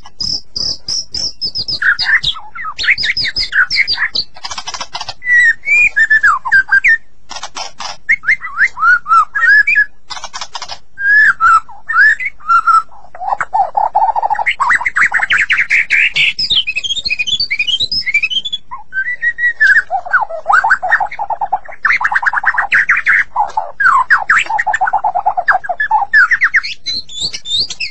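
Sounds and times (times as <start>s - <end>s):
bird singing whistled phrases: 0.1s - 4.4s, 5.2s - 7.1s, 8.0s - 10.0s, 11.0s - 27.9s
bird harsh rattling bursts: 3.0s - 5.2s, 7.3s - 8.1s, 10.1s - 10.8s.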